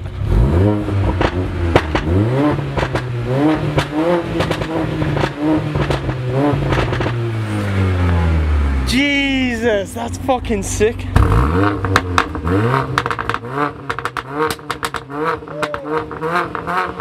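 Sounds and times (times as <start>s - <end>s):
car engine revving: 0.0s - 17.0s
exhaust cracks and pops: 1.1s - 7.2s, 11.2s - 17.0s.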